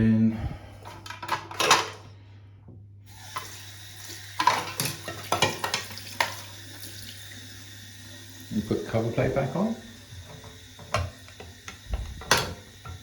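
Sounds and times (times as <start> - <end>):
steady low hum: 0.0 - 1.1
shower parts clicking and knocking: 0.8 - 2.1, 10.2 - 13.0.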